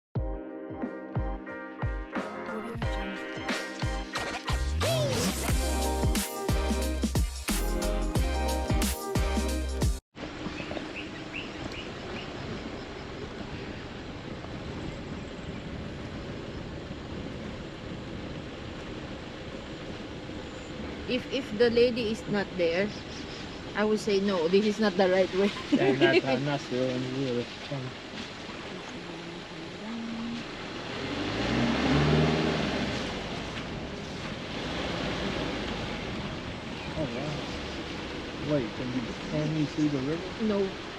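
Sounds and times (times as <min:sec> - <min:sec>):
background music: 0:00.2 - 0:10.0
noisy outdoor background: 0:01.2 - 0:40.9
car engine revving: 0:28.7 - 0:40.8.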